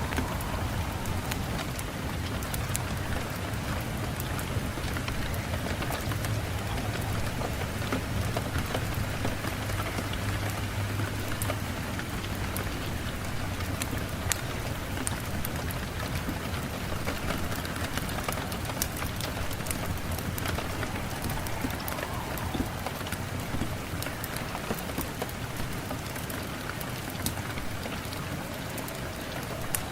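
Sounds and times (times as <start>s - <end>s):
rain falling: 0.0s - 29.9s
raindrops striking a surface: 0.0s - 29.9s.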